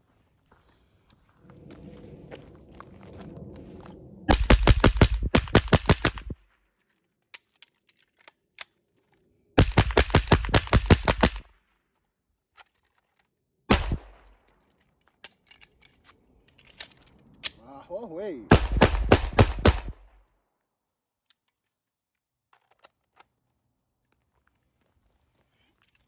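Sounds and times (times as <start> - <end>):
suppressed gunfire: 4.3 - 6.4, 9.6 - 11.5, 13.7 - 14.4, 18.5 - 20.2
sharp gunshot report: 13.7 - 14.3, 18.5 - 20.1.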